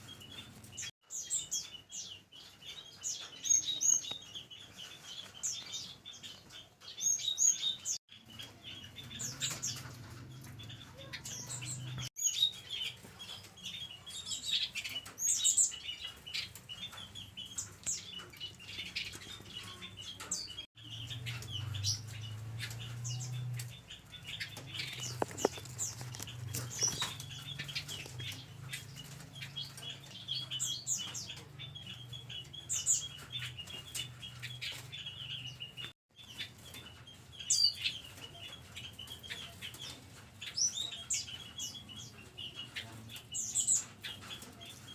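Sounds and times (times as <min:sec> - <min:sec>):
birds chirping rapidly: 0:00.0 - 0:44.9
wing flutters and scuffles: 0:24.6 - 0:28.4.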